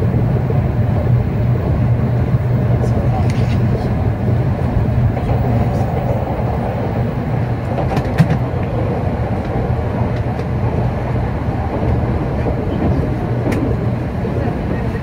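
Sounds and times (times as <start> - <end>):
wheels rumbling on rail: 0.0 - 15.0.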